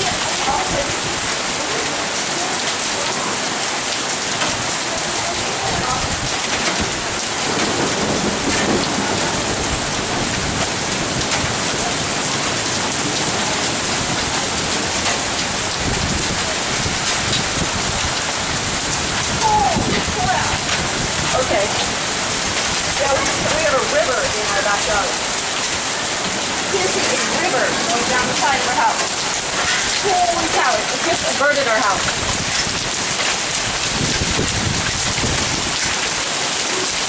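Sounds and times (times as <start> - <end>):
heavy rain pouring: 0.0 - 37.0
low rumbles: 5.7 - 33.2.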